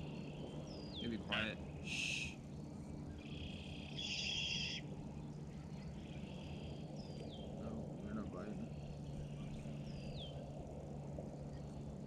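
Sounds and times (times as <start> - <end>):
steady low hum: 0.0 - 12.0
buzzy bird call: 0.9 - 2.5, 3.2 - 4.8.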